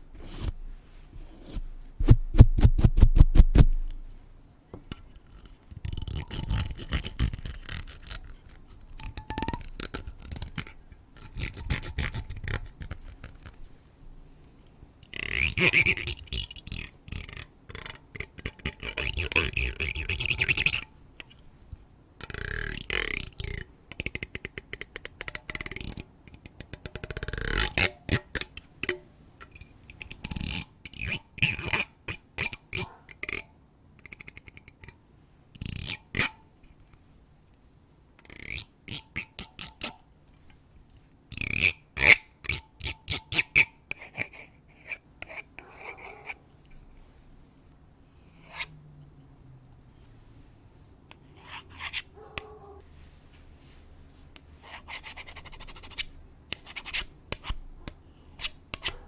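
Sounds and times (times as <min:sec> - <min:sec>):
scratching and brushing: 0:00.0 - 0:04.3, 0:04.9 - 0:14.6, 0:48.2 - 0:48.7, 0:49.9 - 0:57.6
cricket trill: 0:00.0 - 0:59.0.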